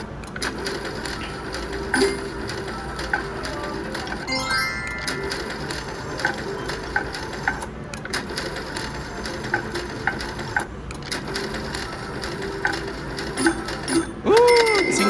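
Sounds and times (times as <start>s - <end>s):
slot machine clicks and beeps: 0.0s - 15.0s
electronic chime tones: 4.3s - 5.6s.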